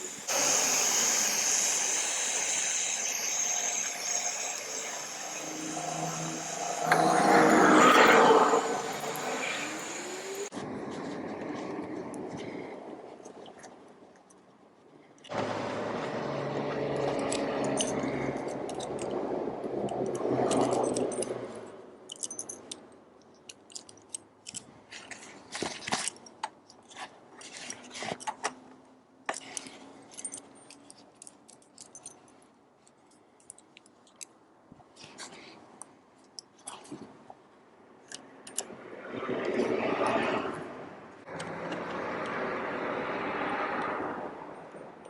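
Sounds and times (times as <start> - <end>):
steady mechanical hum: 0.0 - 10.6
metallic clicks and clinks: 22.1 - 24.7, 29.3 - 34.3.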